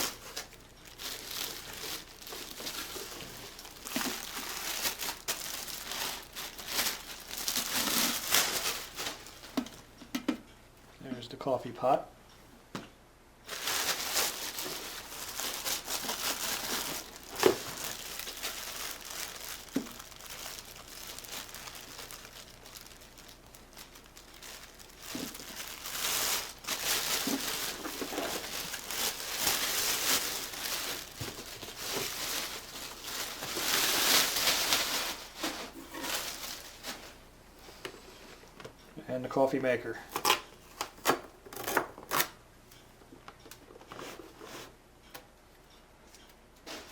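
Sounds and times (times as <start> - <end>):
packaging crinkling and rustling: 0.0 - 9.9, 13.4 - 38.8.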